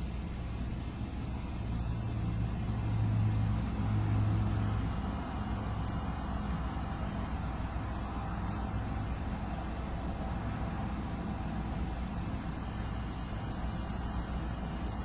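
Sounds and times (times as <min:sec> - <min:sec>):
high-pitched hard drive whine: 0:00.0 - 0:15.0
steady hiss: 0:08.7 - 0:15.0.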